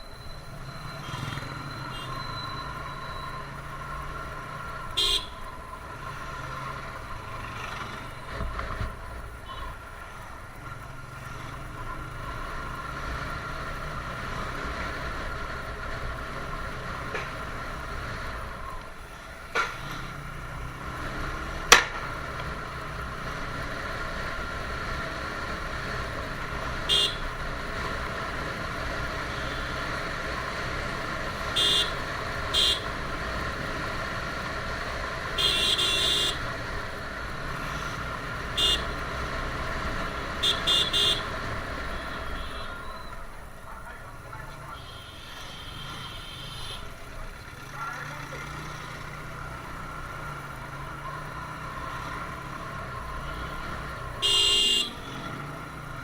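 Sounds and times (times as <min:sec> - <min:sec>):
motorcycle engine running: 0:02.9 - 0:44.8
vehicle horn honks: 0:04.9 - 0:05.5, 0:26.9 - 0:27.4, 0:31.5 - 0:33.0, 0:35.4 - 0:36.5, 0:38.5 - 0:39.0, 0:40.4 - 0:43.1, 0:44.7 - 0:47.0, 0:53.3 - 0:55.3.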